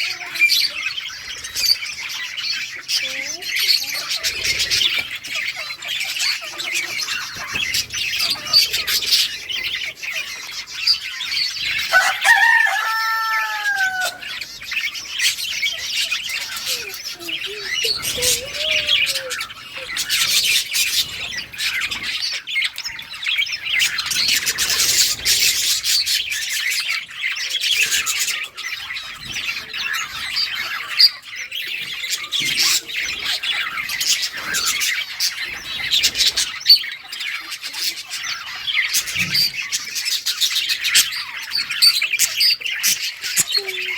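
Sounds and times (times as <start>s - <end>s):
budgerigars chirping and chattering: 0.0s - 43.9s
drawn-out bird call: 11.7s - 21.4s.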